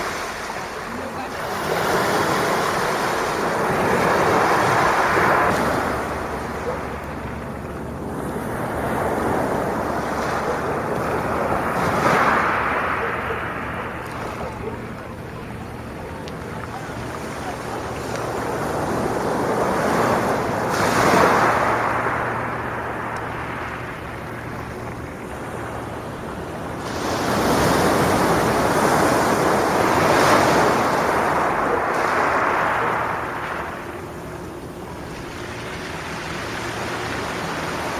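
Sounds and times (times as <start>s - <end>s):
sea waves washing ashore: 0.0s - 37.9s.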